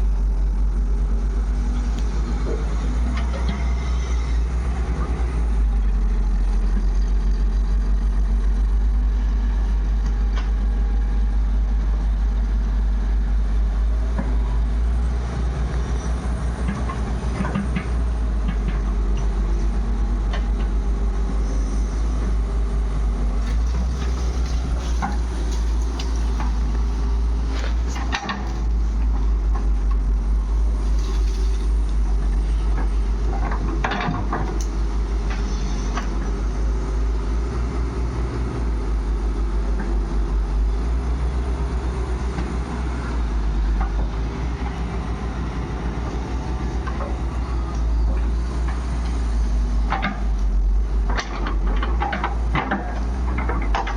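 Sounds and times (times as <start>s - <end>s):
heavy diesel engine running: 0.0s - 53.9s
knocks and clatters: 23.4s - 30.0s, 32.7s - 36.5s, 43.7s - 53.9s.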